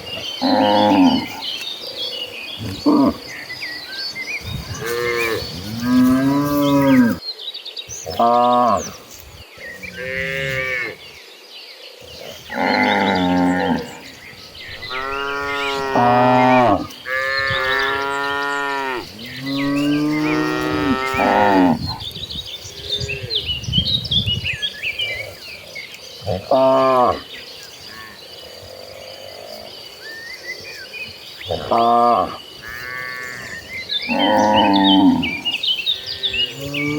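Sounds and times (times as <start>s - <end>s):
cattle mooing: 0.4s - 1.4s, 4.8s - 7.2s, 12.4s - 21.9s.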